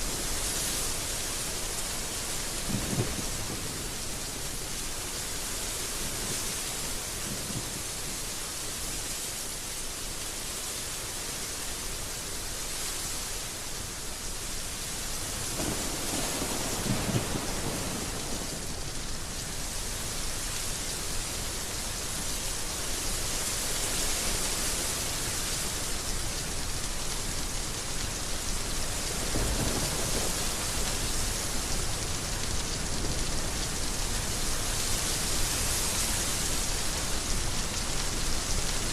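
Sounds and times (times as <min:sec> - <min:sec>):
heavy rain falling: 0:00.0 - 0:38.9
thunder rumbling: 0:15.6 - 0:18.9.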